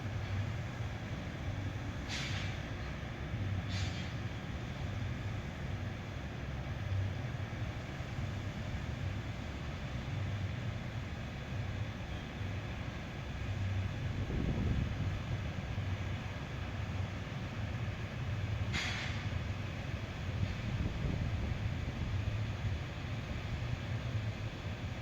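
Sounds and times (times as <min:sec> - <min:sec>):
low vehicle rumble: 0:00.0 - 0:25.0
short hisses: 0:18.7 - 0:19.2.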